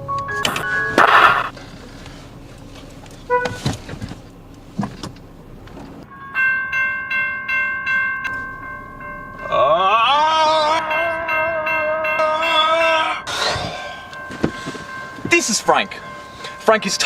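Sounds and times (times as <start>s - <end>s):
level crossing bell ringing: 0.0s - 1.5s, 6.1s - 17.0s.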